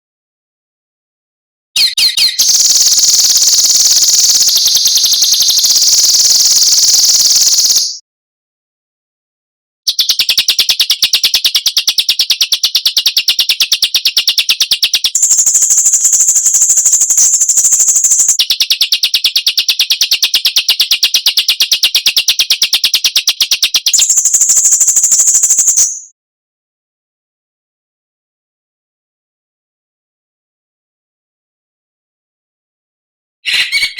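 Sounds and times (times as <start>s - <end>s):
harsh rapid bird rattle: 1.9s - 8.0s, 9.9s - 26.0s.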